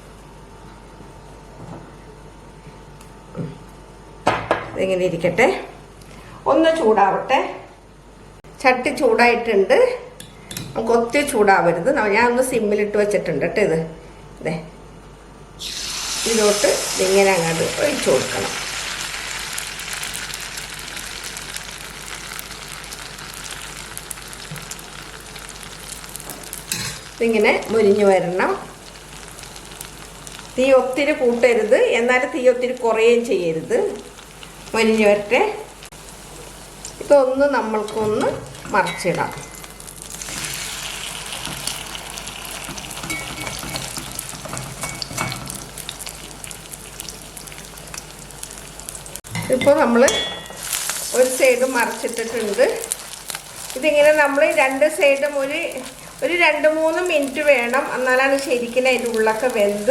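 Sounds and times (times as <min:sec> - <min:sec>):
batter sizzling in oil: 0:15.6 - 0:59.9.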